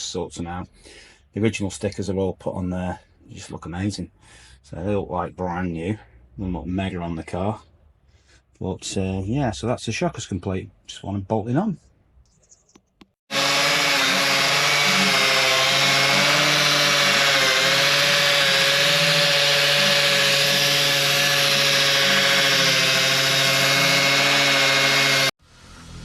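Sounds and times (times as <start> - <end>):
power tool motor running: 13.3 - 25.4.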